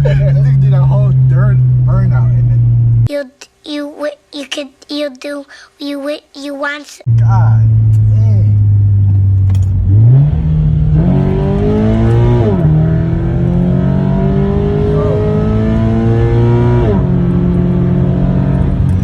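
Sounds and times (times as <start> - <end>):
car engine revving hard: 7.2 - 19.0.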